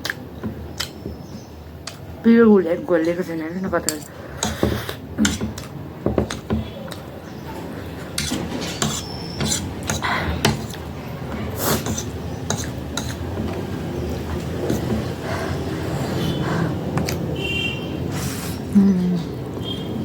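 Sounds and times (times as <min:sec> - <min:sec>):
cutlery scraping a plate: 0:03.8 - 0:07.0, 0:07.6 - 0:15.2.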